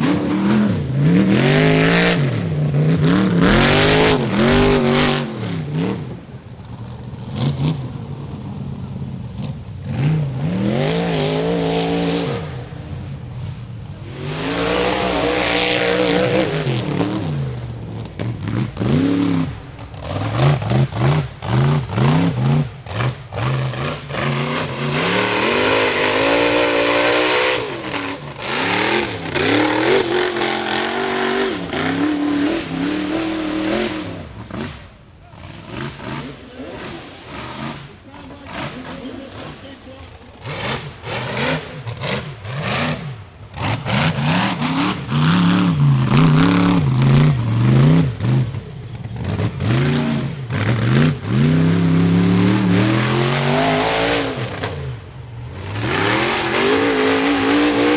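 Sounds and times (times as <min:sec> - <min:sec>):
buggy engine revving: 0:00.0 - 0:57.9.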